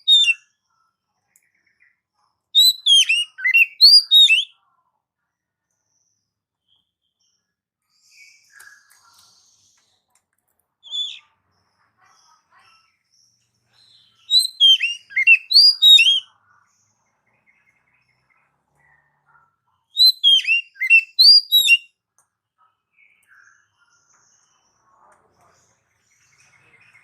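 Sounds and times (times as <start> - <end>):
songbird whistling: 0.0 - 0.4, 2.6 - 4.5, 10.9 - 11.2, 14.2 - 16.2, 20.0 - 21.9.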